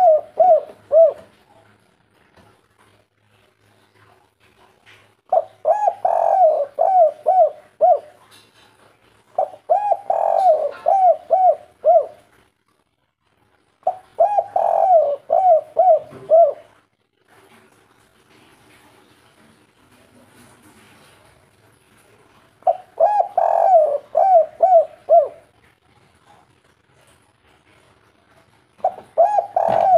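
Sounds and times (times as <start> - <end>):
dove cooing: 0.0 - 1.5, 5.3 - 8.3, 9.4 - 12.3, 13.8 - 16.8, 22.6 - 25.6, 28.8 - 29.9.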